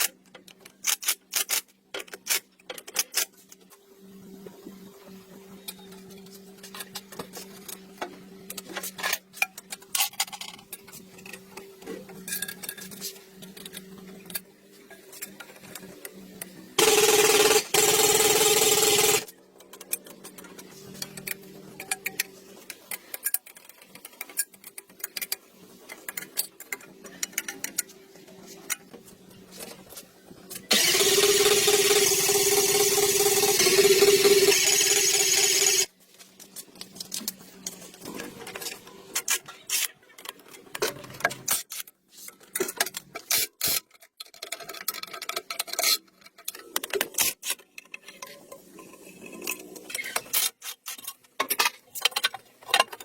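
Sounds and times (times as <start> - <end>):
motor running loudly: 30.7 - 35.9
small metallic clicks and rubbing: 36.4 - 53.0.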